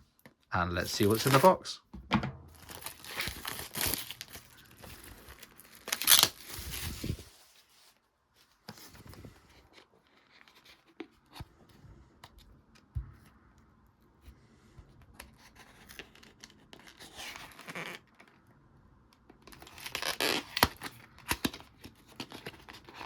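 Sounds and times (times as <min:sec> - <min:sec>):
plastic wrap tearing and crinkling: 0:02.5 - 0:07.7, 0:19.5 - 0:23.0.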